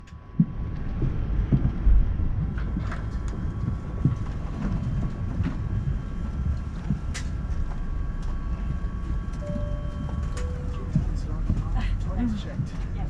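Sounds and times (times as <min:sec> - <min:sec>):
faint steady hum: 0:00.0 - 0:13.0
low cabin rumble: 0:00.0 - 0:13.0.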